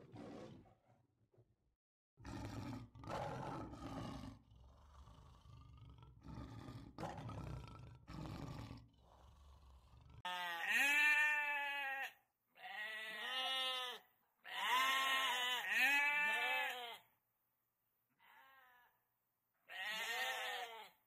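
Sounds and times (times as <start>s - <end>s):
lion roaring: 0.0s - 0.8s, 2.2s - 10.3s
sheep bleating: 10.2s - 17.1s, 18.2s - 18.9s, 19.7s - 21.0s.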